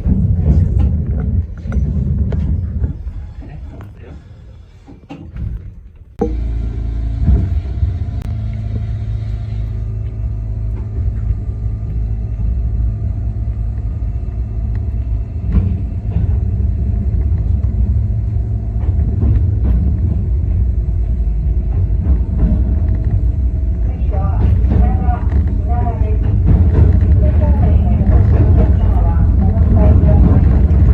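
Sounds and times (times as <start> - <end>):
train running rumble: 0.0 - 30.9
train motor tones: 6.2 - 30.9.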